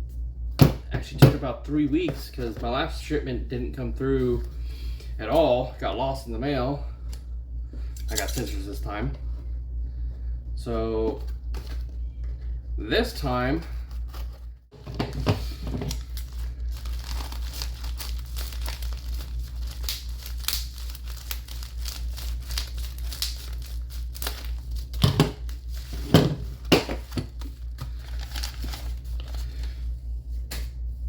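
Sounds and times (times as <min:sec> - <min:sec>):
steady low hum: 0:00.0 - 0:31.0
plastic packaging crinkling and tearing: 0:15.4 - 0:29.7.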